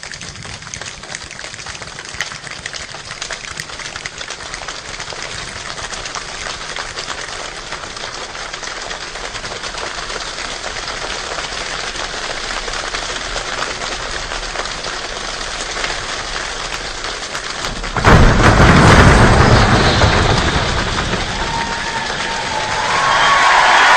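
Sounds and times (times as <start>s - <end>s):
rain falling: 0.0s - 23.9s
thunder crack: 15.8s - 23.9s.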